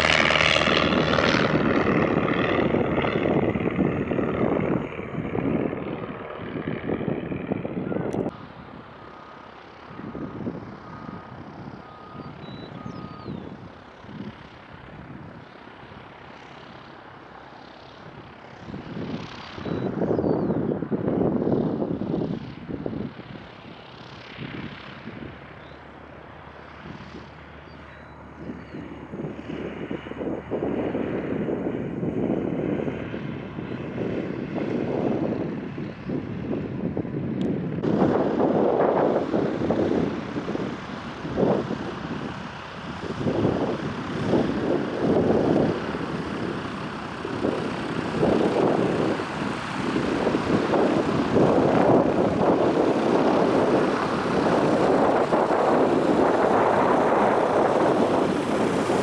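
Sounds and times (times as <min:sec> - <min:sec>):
propeller airplane engine: 0:00.0 - 0:59.0.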